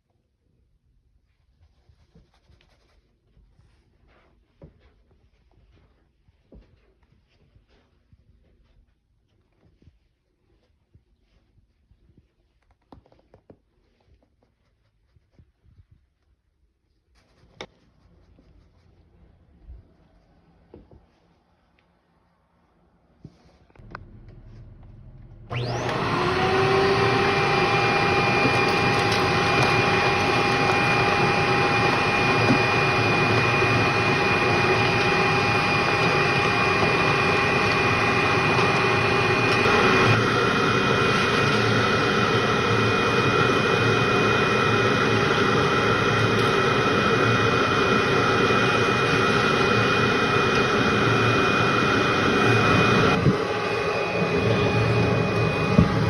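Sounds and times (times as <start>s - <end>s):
vacuum cleaner whining: 23.8s - 56.0s.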